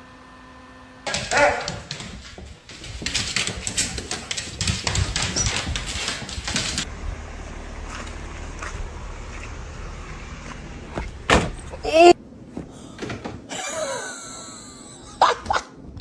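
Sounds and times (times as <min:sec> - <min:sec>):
dog short cry: 0:01.1 - 0:01.9
scuffling and rustling: 0:01.1 - 0:06.9.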